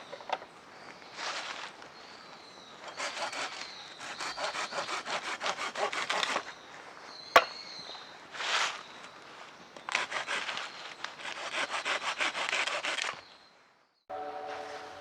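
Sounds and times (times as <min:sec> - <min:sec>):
hand saw cutting wood: 0:02.8 - 0:06.5, 0:09.9 - 0:13.3
sharp knock: 0:07.4 - 0:07.6.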